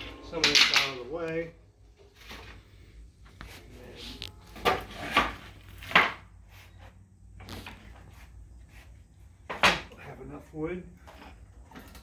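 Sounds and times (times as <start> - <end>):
wooden wagon parts knocking: 0.0 - 1.5, 4.5 - 6.3.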